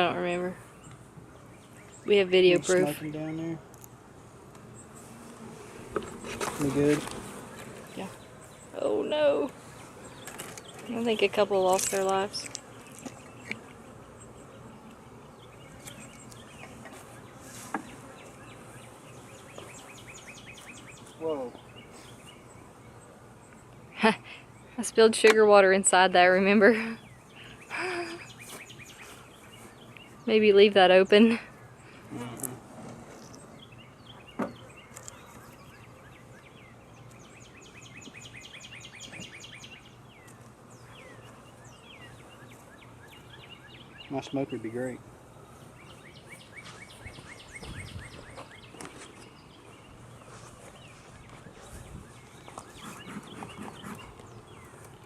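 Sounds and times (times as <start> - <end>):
bees humming: 0.0 - 55.0
birds chirping: 0.0 - 55.0
thump: 34.4 - 34.6.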